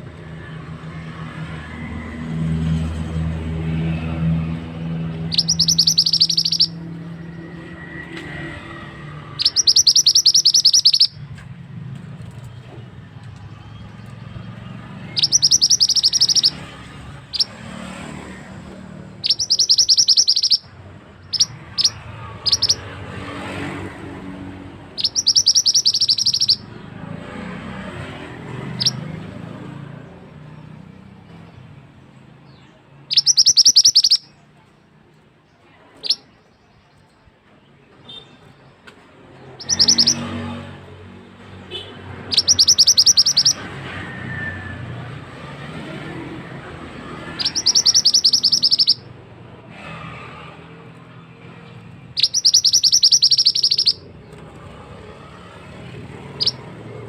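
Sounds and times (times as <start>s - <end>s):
bird singing trilled phrases: 5.2s - 7.3s, 9.4s - 11.2s, 15.0s - 16.7s, 17.3s - 17.6s, 19.2s - 22.9s, 25.0s - 26.7s, 28.7s - 29.0s, 32.5s - 34.4s, 39.5s - 40.4s, 41.7s - 43.8s, 47.2s - 49.1s, 52.1s - 54.4s, 56.3s - 56.7s.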